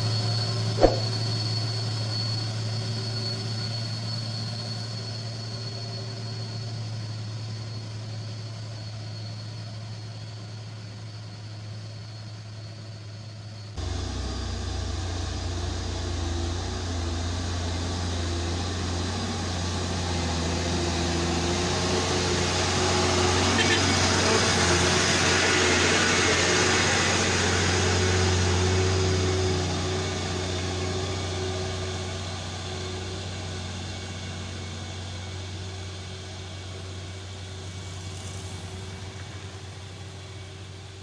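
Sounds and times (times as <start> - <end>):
diesel truck engine climbing: 0.0 - 8.3, 13.8 - 41.0
close truck engine: 13.8 - 41.0.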